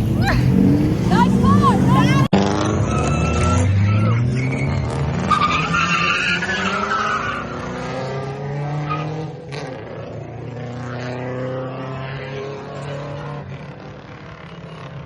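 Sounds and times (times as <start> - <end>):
car tyres squealing: 0.0 - 9.4
car engine: 0.0 - 15.0.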